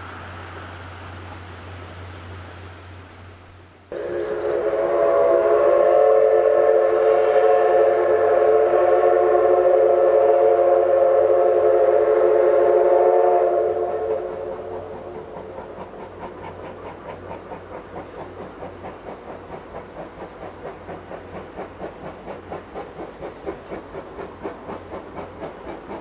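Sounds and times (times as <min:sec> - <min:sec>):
locomotive exhaust chuffs: 0:00.0 - 0:26.0
steam whistle blast: 0:03.9 - 0:14.9.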